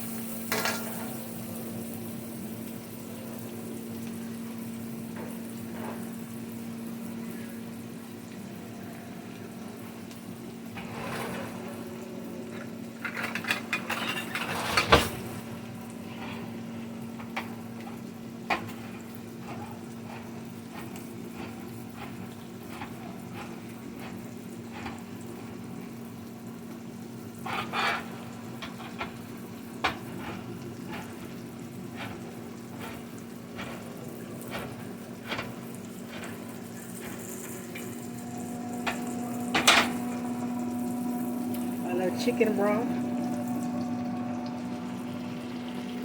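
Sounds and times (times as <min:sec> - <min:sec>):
food sizzling in a pan: 0:00.0 - 0:46.0
utensil scraping a pan: 0:27.4 - 0:29.2
low hum: 0:38.0 - 0:46.0.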